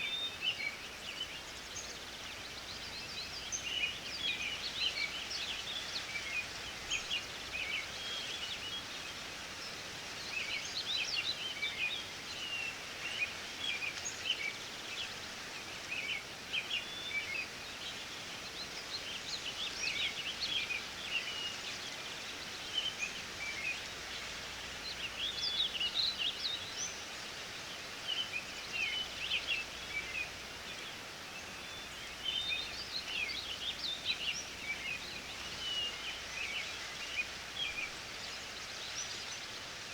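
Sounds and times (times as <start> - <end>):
outdoor hiss: 0.0 - 39.9
songbirds chirping: 0.0 - 39.9.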